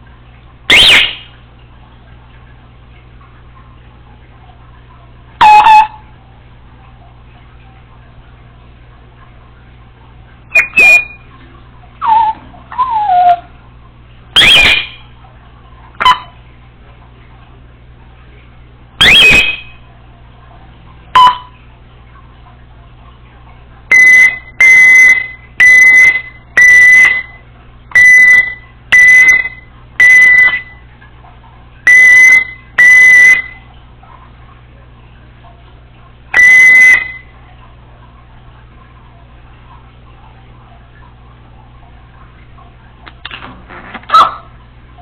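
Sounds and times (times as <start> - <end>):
parrot whistles and squawks: 0.7 - 1.3, 5.4 - 6.0, 10.5 - 11.3, 12.0 - 13.5, 14.4 - 15.0, 16.0 - 16.3, 19.0 - 19.8
loud alarm-like beeps: 5.4 - 6.0, 23.9 - 27.4, 28.0 - 30.8, 31.9 - 33.6, 36.4 - 37.2.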